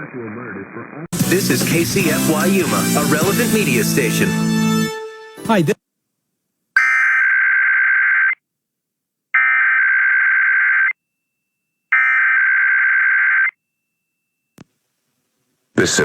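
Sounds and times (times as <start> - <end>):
harsh buzzing two-tone data warble: 6.8 - 8.4.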